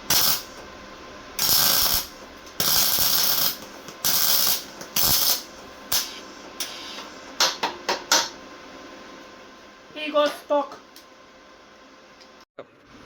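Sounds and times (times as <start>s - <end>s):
welder arc crackling: 0.0s - 7.6s.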